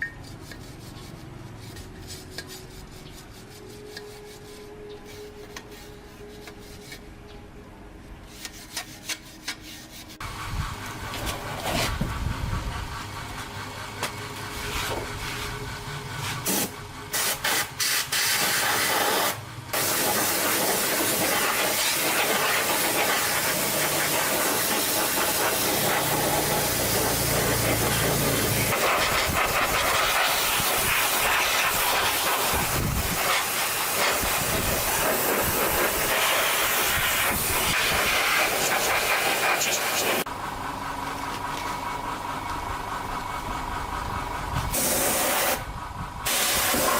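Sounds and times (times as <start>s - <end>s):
hissing spray from nozzle: 16.4s - 40.3s, 44.7s - 45.6s, 46.3s - 46.9s.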